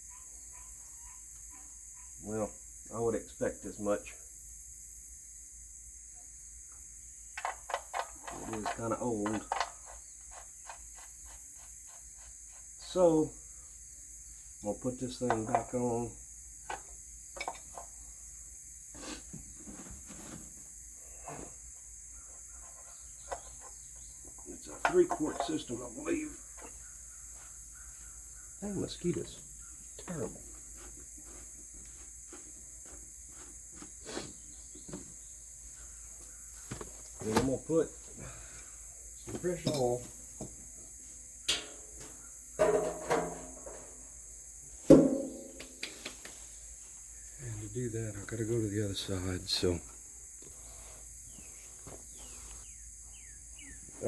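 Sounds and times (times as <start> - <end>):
steady high hiss: 2.2 - 9.4, 10.1 - 30.4, 34.0 - 54.0
metal objects clanking: 24.6 - 25.8, 39.6 - 40.0, 42.6 - 43.9.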